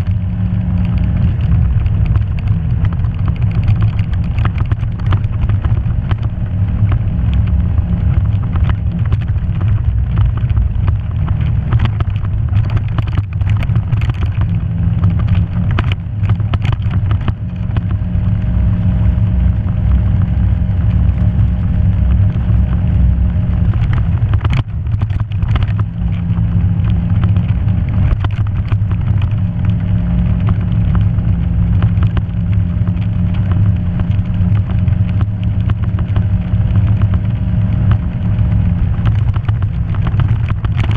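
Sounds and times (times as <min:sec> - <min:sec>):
off-road vehicle engine running: 0:00.0 - 0:40.9
knocks and rattles from bumpy ground: 0:00.9 - 0:18.0.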